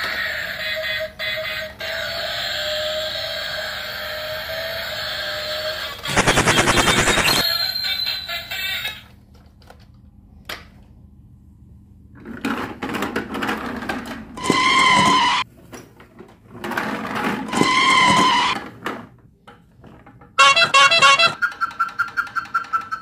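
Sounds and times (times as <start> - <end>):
toy trains rattling on tile: 0.0 - 9.1, 14.4 - 15.4, 16.8 - 18.6, 20.4 - 23.0
electronic toot: 6.1 - 7.6, 20.4 - 21.4.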